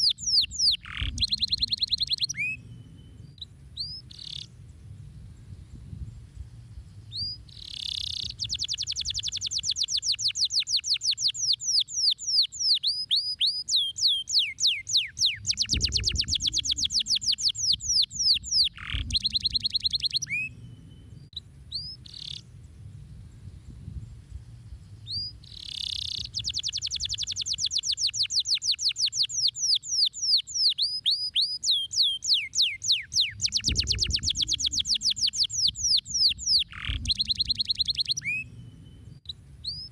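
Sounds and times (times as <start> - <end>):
canary singing trills: 0.0 - 4.6, 7.0 - 22.5, 24.6 - 39.9
low hum: 36.9 - 39.8.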